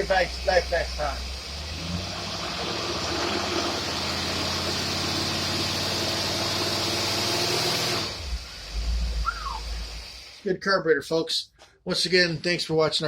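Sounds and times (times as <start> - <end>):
engine running steadily: 0.0 - 10.4.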